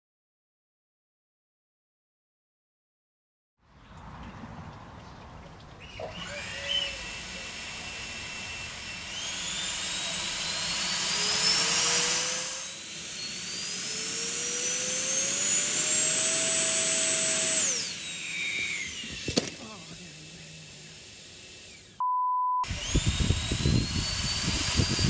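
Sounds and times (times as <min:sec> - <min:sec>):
electric ducted fan whine: 0:22.7 - 0:25.0.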